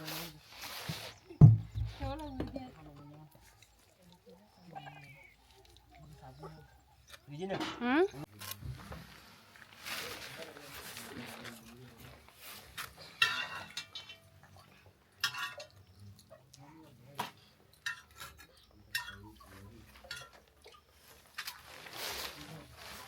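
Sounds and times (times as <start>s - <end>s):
dishes and cutlery clinking: 13.0s - 15.9s, 17.2s - 20.5s.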